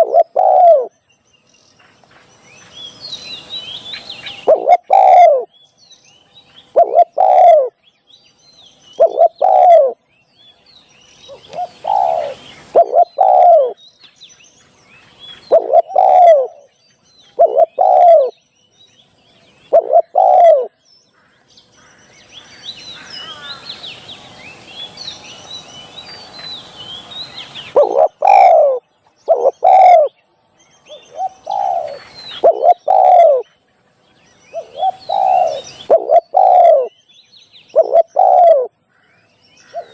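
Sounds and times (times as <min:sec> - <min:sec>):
dove cooing: 0:00.0 - 0:00.9, 0:04.0 - 0:05.5, 0:06.7 - 0:07.8, 0:09.0 - 0:10.0, 0:11.3 - 0:13.8, 0:15.4 - 0:16.7, 0:17.4 - 0:18.3, 0:19.7 - 0:20.7, 0:27.4 - 0:30.1, 0:30.9 - 0:33.5, 0:34.5 - 0:36.9, 0:37.7 - 0:38.7
small birds chirping faintly: 0:00.0 - 0:39.9.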